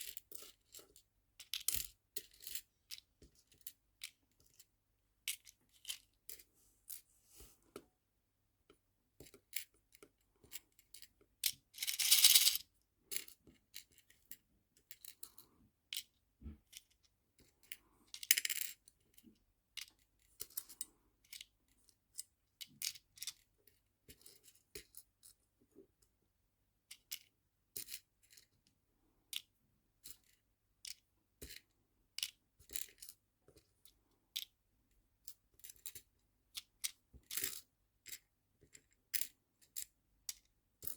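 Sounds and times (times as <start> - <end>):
charms rattling: 11.8 - 12.6
small charms clicking: 11.8 - 12.6.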